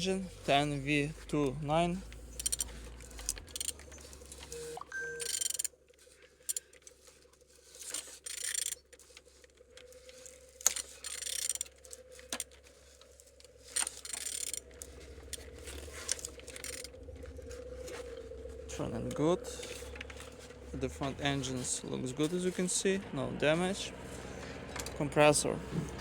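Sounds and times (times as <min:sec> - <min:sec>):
engine crankshaft scraping and hissing: 0:00.0 - 0:04.6, 0:06.3 - 0:26.0
wrench clicks: 0:02.3 - 0:03.9, 0:05.2 - 0:05.7, 0:07.9 - 0:08.8, 0:10.6 - 0:11.7, 0:13.8 - 0:14.6, 0:15.3 - 0:16.9.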